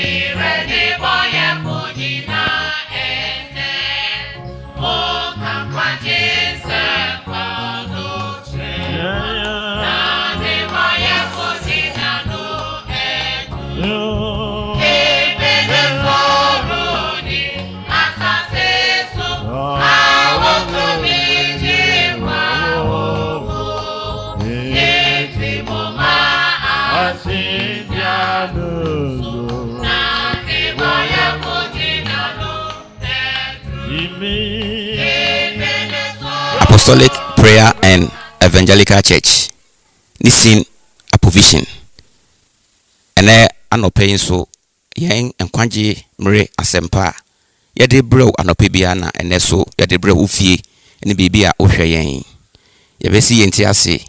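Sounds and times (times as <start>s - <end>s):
choir singing: 0.0s - 38.6s
instrumental accompaniment: 0.0s - 38.6s.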